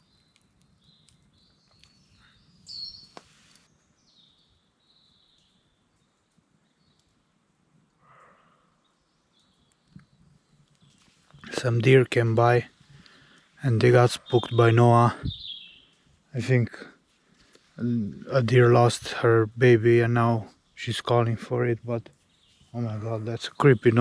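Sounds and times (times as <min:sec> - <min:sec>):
faint birdsong: 0:00.0 - 0:24.0.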